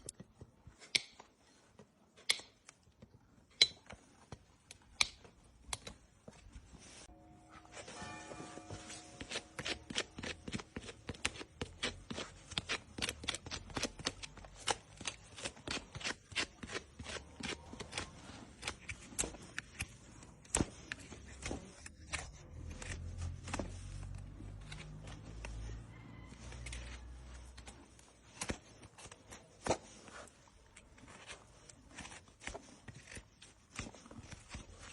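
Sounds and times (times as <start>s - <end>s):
tool scraping hoof: 7.0s - 13.7s.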